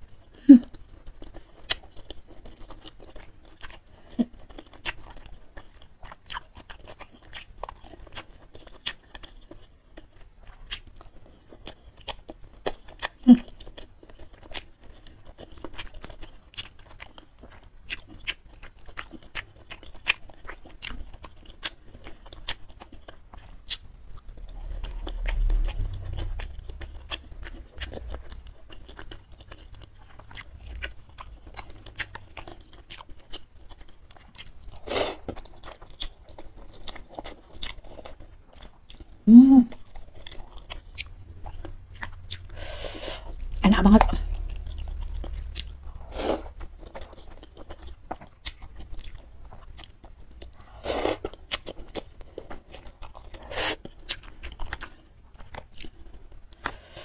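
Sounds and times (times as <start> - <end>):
chewing and mouth sounds: 0.0 - 57.0
low rumble: 24.0 - 32.2, 39.3 - 49.3.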